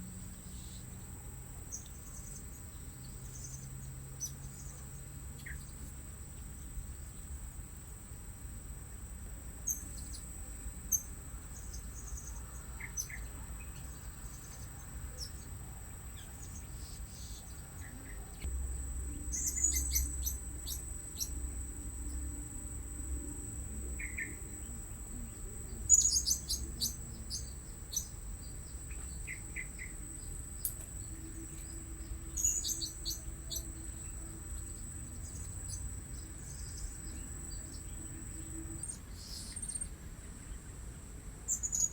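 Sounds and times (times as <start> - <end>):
high-pitched insect drone: 18.5 - 39.9.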